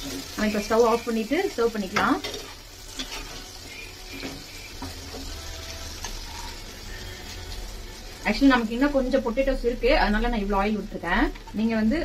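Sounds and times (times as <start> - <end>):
steel spatula scraping a pan: 0.0 - 7.5
potatoes sizzling in oil: 0.0 - 12.0.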